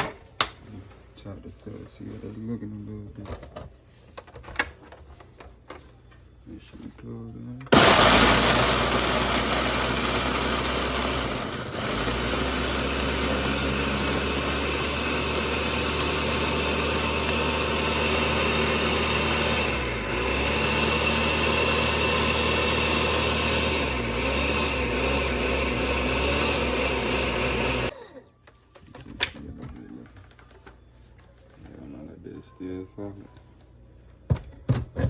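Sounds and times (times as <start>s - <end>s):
electric blender motor running: 7.7s - 27.9s.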